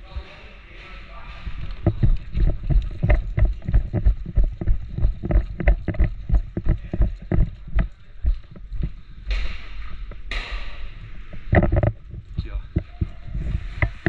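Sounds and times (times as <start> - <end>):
jogging footsteps: 0.0 - 14.0
gear jostling: 1.3 - 10.4.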